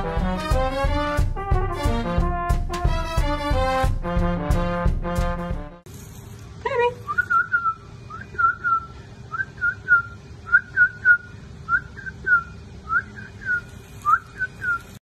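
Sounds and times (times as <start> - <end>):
brass band music: 0.0 - 5.8
person whistling: 7.1 - 14.9.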